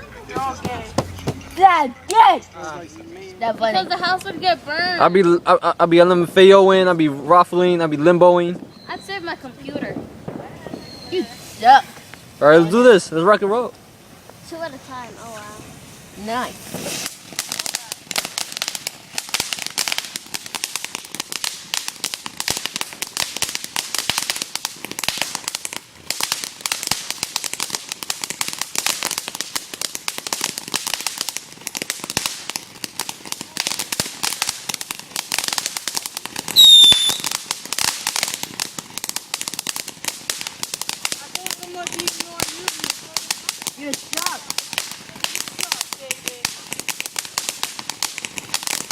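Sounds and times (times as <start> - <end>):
fireworks crackling: 0.0 - 48.9
shrill firework whistle: 8.7 - 9.2, 10.6 - 11.6, 36.5 - 37.3.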